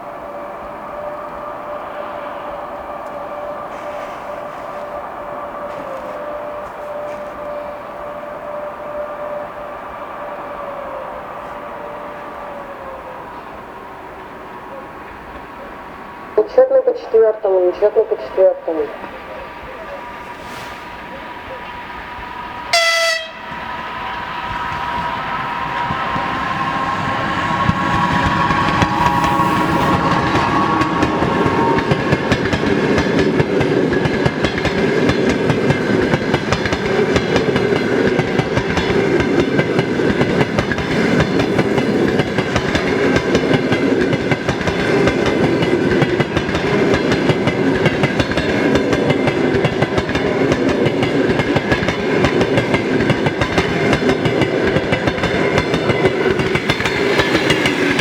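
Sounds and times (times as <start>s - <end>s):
held horn tones: 22.6s - 32.8s
train wheels clattering: 22.7s - 58.0s.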